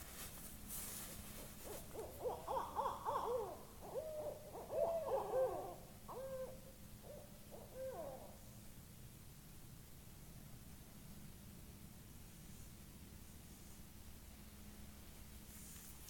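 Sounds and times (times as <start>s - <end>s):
owl hooting: 1.1s - 8.6s.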